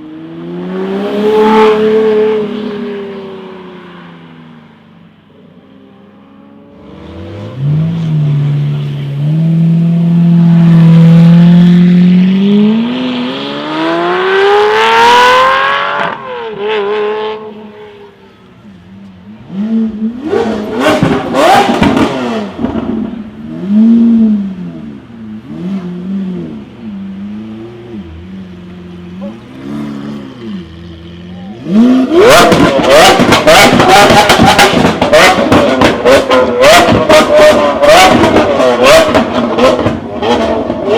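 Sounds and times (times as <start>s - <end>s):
engine revving: 0.0s - 3.1s, 5.9s - 17.9s, 19.3s - 28.3s, 29.1s - 40.9s
car engine accelerating: 0.0s - 4.6s, 5.6s - 40.9s
exhaust cracks: 20.2s - 23.4s, 31.8s - 40.9s.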